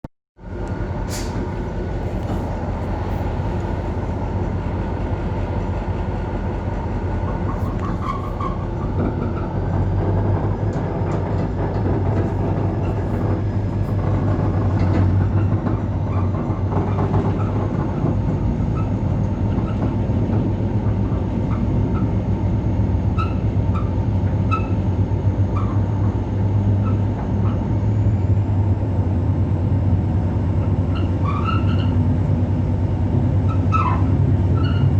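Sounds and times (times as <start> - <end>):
diesel locomotive engine drone: 0.4 - 34.9.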